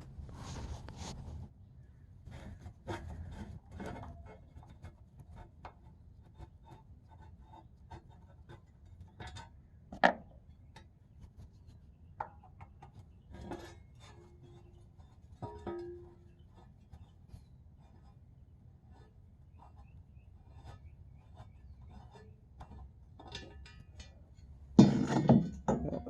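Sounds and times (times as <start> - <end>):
hand tools clicking and knocking: 22.6 - 26.0.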